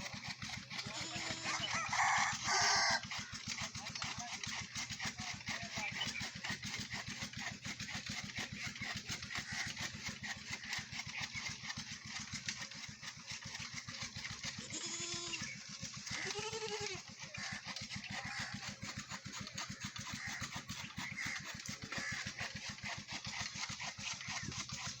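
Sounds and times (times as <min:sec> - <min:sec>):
engine running: 0:00.0 - 0:25.0
goat bleating: 0:00.9 - 0:01.6, 0:14.6 - 0:15.4, 0:16.1 - 0:17.1.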